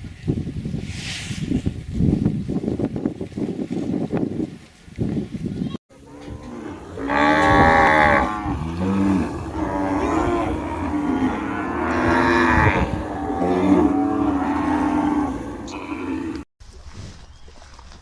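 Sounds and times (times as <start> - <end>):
cattle mooing: 6.0 - 16.4.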